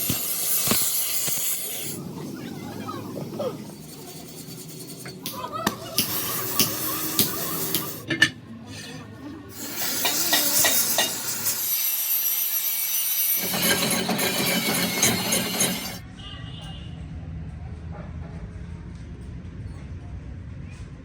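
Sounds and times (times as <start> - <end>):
metal tools rasping on metal: 3.3 - 8.3, 9.5 - 16.0.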